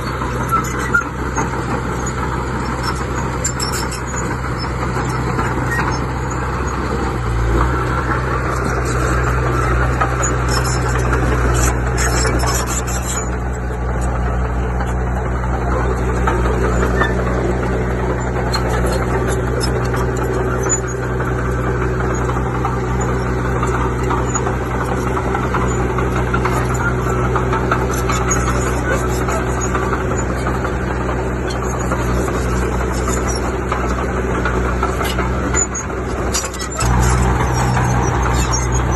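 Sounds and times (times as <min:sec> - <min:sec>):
diesel engine running: 0:00.0 - 0:38.9
metallic clatter: 0:08.0 - 0:38.9.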